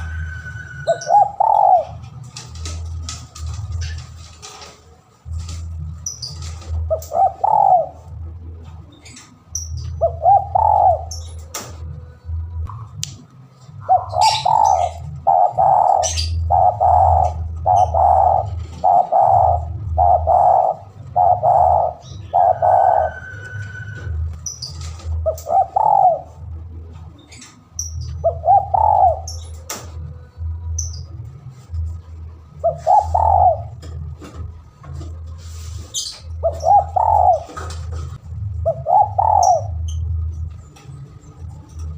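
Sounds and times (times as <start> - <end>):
dove cooing: 0.0 - 2.4, 6.3 - 8.6, 9.8 - 11.5, 13.8 - 26.6, 28.0 - 29.5, 32.6 - 34.0, 36.4 - 40.1
low hum: 0.0 - 41.9
small birds chirping: 6.0 - 8.0, 13.8 - 23.1, 38.7 - 40.1.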